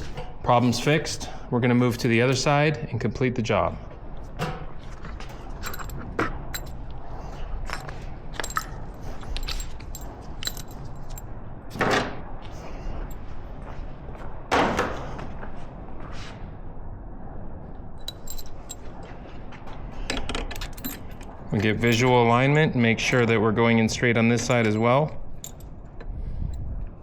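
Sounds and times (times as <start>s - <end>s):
metal tools clinking: 5.5s - 6.8s, 7.8s - 11.3s, 18.0s - 19.2s, 20.2s - 26.6s.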